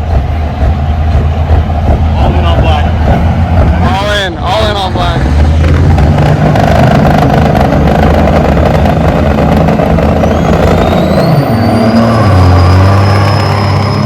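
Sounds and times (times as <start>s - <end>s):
diesel truck engine running: 0.0s - 14.0s
rising turbo whistle: 8.4s - 14.0s.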